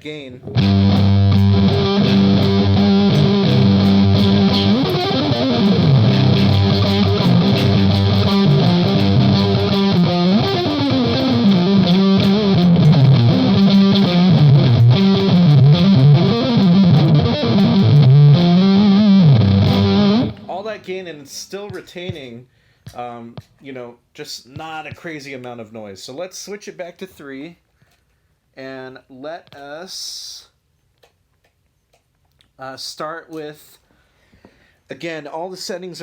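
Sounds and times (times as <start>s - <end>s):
distorted electric guitar: 0.5s - 20.8s.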